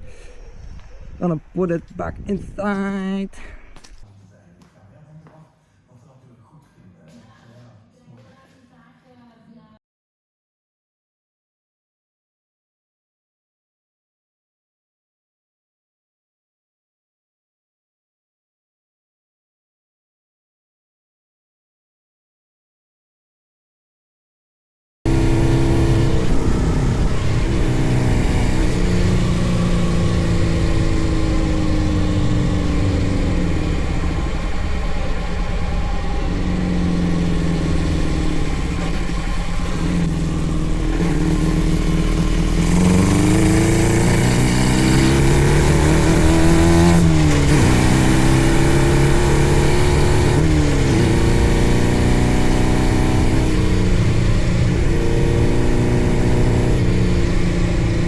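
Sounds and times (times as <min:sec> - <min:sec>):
go-kart engine revving: 0:25.1 - 0:58.0.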